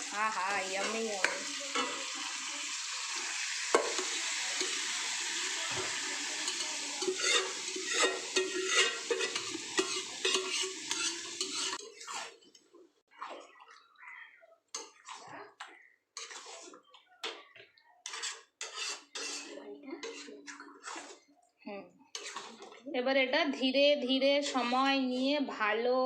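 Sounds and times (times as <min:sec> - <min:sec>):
food sizzling in a pan: 0:00.0 - 0:12.5, 0:18.1 - 0:21.2, 0:22.1 - 0:22.8
spoon stirring and scraping pan: 0:00.0 - 0:22.9, 0:23.8 - 0:25.6
spoon clinking on pan: 0:00.8 - 0:02.2, 0:03.7 - 0:04.9, 0:05.8 - 0:12.0.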